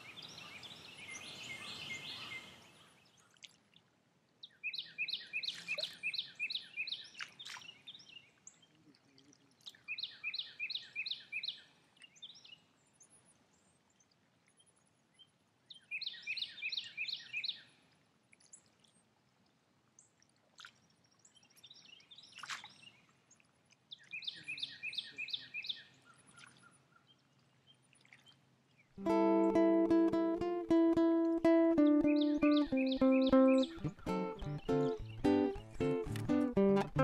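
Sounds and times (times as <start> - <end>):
songbird singing repeated notes: 4.4 - 8.8, 9.6 - 13.2, 14.0 - 17.7, 23.9 - 37.0
faint bird chirps: 23.9 - 29.0, 31.7 - 35.8.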